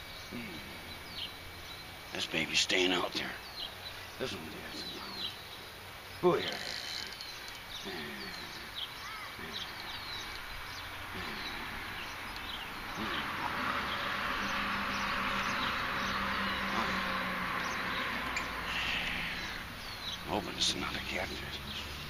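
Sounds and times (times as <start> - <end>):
birds chirping: 0.0 - 22.0
low hum and hiss: 0.0 - 22.0.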